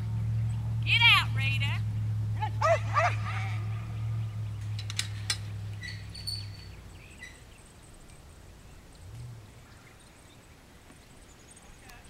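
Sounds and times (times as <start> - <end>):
low steady hum: 0.0 - 12.0
bird chirps: 1.8 - 12.0
sharp clicks: 4.6 - 5.8.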